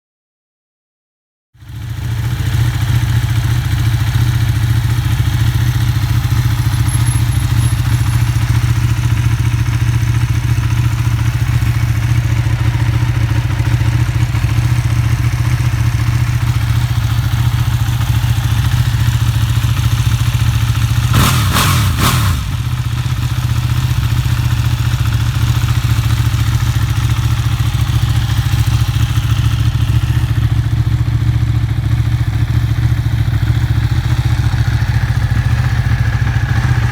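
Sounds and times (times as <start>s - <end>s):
motorcycle engine idling: 1.6s - 36.9s
engine throttle blip: 6.0s - 9.8s, 16.8s - 23.5s.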